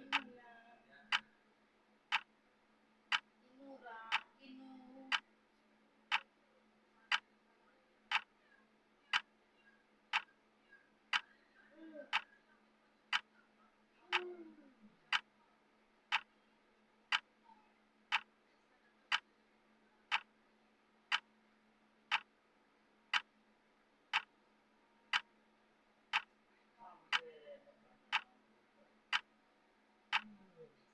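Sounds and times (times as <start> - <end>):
clock ticking: 0.0 - 0.3, 2.1 - 2.3, 3.1 - 3.3, 8.1 - 8.3, 10.1 - 10.3, 16.1 - 16.3, 18.1 - 18.3, 20.1 - 20.3, 22.1 - 22.3, 23.1 - 23.3, 24.1 - 24.3, 25.1 - 25.3, 26.1 - 26.4, 27.1 - 27.3, 28.1 - 28.3, 29.1 - 29.3, 30.1 - 30.4
faint steady hum: 0.0 - 30.9.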